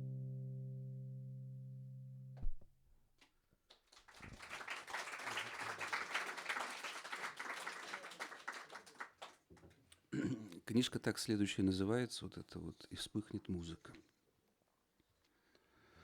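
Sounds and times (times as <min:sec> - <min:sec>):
audience applause: 0:03.8 - 0:09.4.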